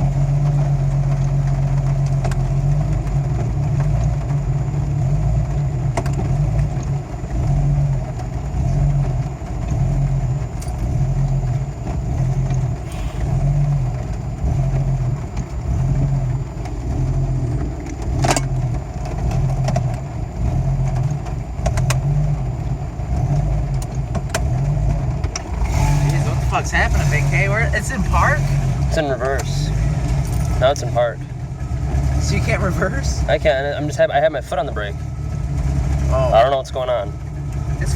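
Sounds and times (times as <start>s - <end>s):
car engine idling roughly: 0.0s - 37.9s.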